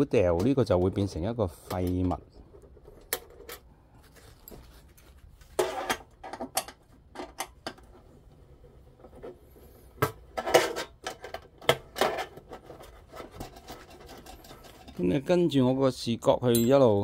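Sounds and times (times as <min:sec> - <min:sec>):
metal parts clinking and scraping: 0:10.4 - 0:15.2.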